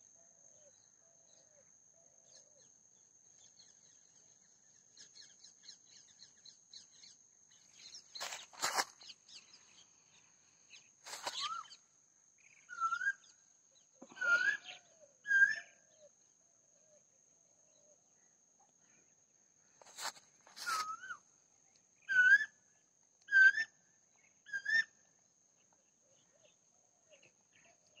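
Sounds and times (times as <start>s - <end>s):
short whistled bird notes: 11.2s - 11.8s, 20.6s - 21.2s.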